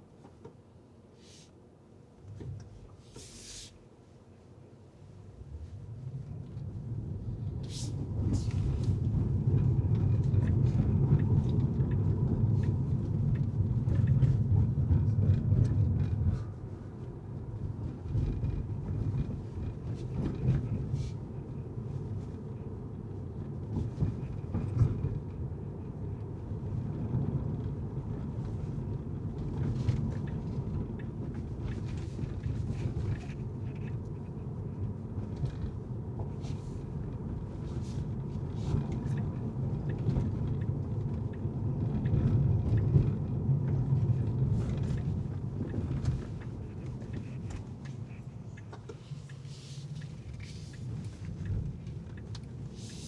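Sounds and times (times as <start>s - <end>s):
car engine and road noise: 4.6s - 53.0s.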